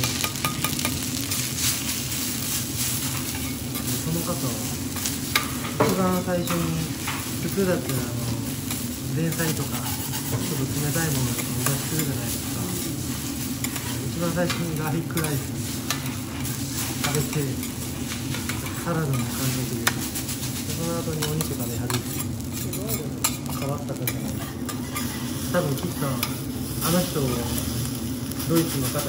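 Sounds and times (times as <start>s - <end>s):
rice sizzling on a griddle: 0.0s - 29.0s
metal spatulas scraping: 8.7s - 12.8s.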